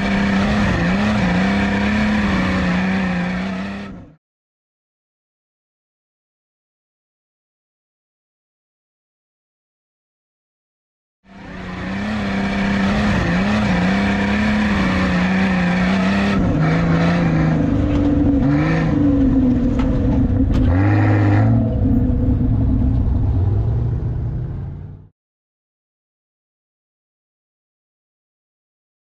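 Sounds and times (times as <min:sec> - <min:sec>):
buggy engine revving hard: 0:00.0 - 0:04.2, 0:11.3 - 0:25.0.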